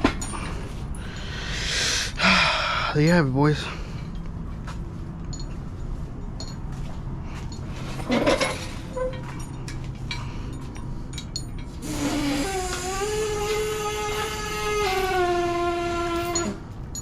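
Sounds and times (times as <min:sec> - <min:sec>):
rustle or clatter: 0:04.2 - 0:17.0
light metallic clinks: 0:05.2 - 0:11.8.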